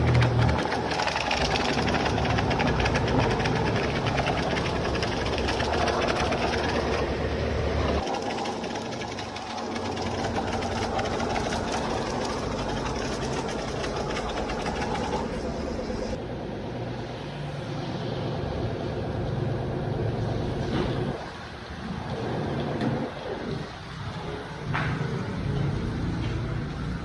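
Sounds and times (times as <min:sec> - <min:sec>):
two-stroke motorcycle engine: 0:00.0 - 0:16.2.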